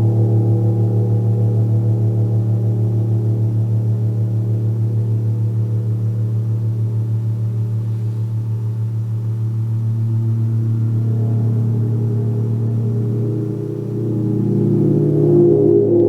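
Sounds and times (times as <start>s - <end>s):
gong drone: 8.9s - 16.0s.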